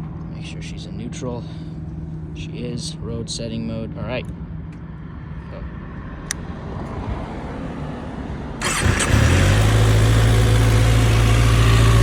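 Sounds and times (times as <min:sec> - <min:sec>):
motorcycle engine idling: 0:08.6 - 0:12.0
motorcycle starter cranking: 0:08.6 - 0:12.0.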